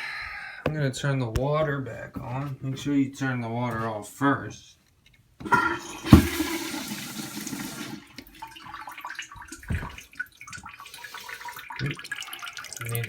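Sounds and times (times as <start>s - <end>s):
water rushing into toilet tank: 5.4s - 13.0s.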